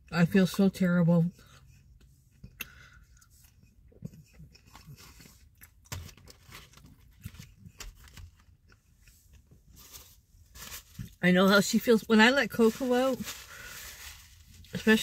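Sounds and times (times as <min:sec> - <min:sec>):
person chewing crunchy food: 0:01.4 - 0:09.7.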